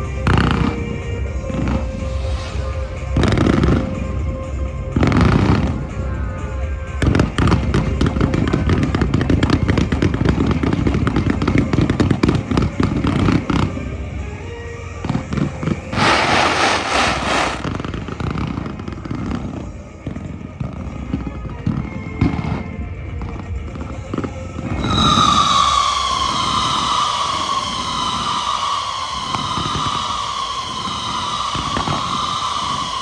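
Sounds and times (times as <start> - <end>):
hissing crackling firework burst: 0.0 - 21.1, 23.6 - 33.0
fireworks bursting and crackling: 0.0 - 33.0
music: 0.0 - 33.0.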